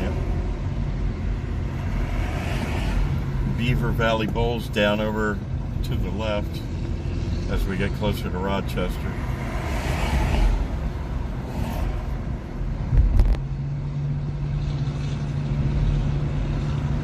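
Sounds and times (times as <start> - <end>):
car road and tyre noise: 0.0 - 17.0.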